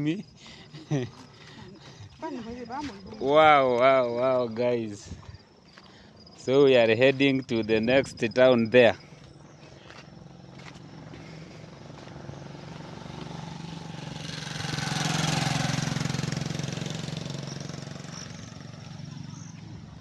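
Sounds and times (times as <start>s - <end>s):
motor vehicle driving past: 9.5s - 20.0s.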